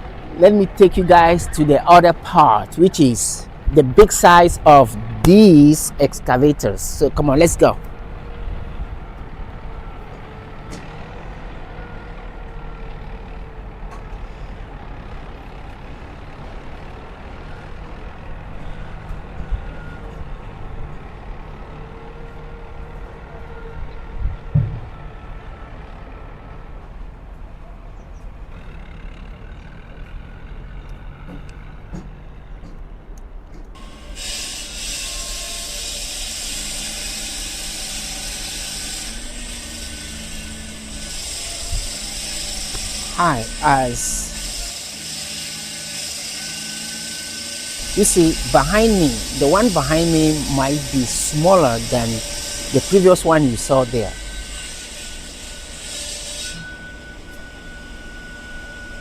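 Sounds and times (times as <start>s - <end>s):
diesel engine rumbling: 0.0s - 27.6s
thump: 24.5s - 24.9s
loud steady hiss: 47.7s - 54.3s.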